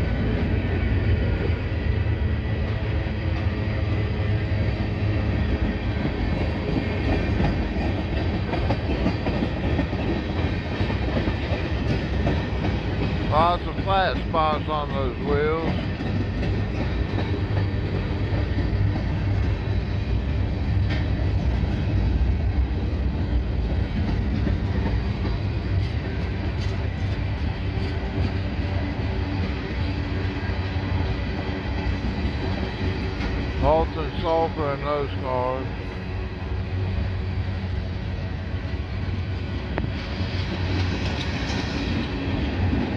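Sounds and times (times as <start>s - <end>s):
freight cars rumbling: 0.0s - 42.9s
wheels clacking: 5.6s - 29.5s.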